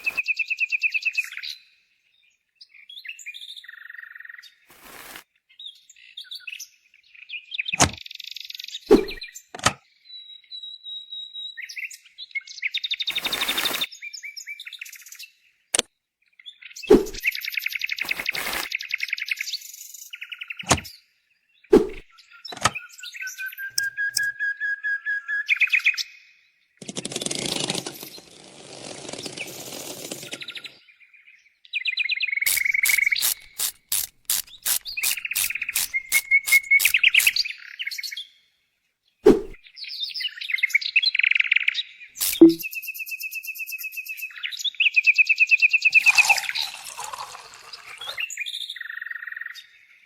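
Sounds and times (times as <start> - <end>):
small birds chirping: 31.8 - 38.3
sharp clicks: 32.5 - 37.4, 42.2 - 42.6.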